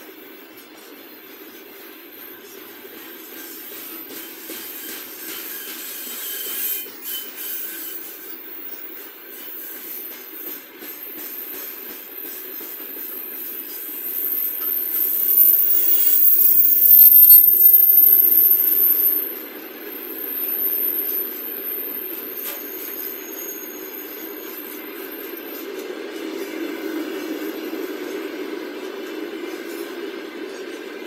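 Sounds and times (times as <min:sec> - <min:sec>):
freight train rolling past: 0:00.0 - 0:31.0
thin high whine: 0:13.7 - 0:24.5.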